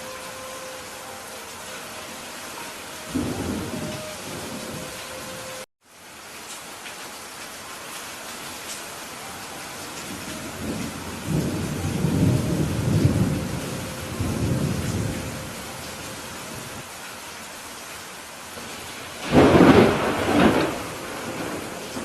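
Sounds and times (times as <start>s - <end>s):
steady rain falling: 0.0s - 22.0s
low rumble of thunder: 10.0s - 16.8s, 18.7s - 22.0s.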